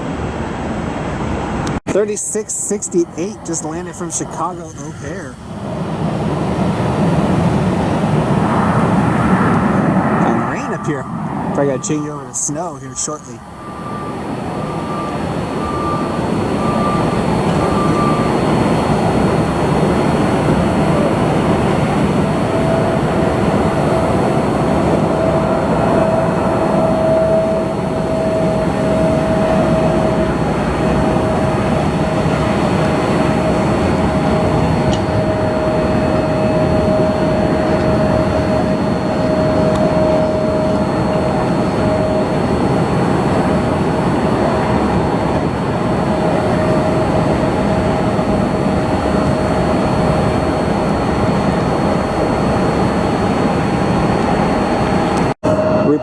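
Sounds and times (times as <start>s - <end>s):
jet engine whine: 0.0s - 56.0s
jet engines rushing: 0.0s - 56.0s.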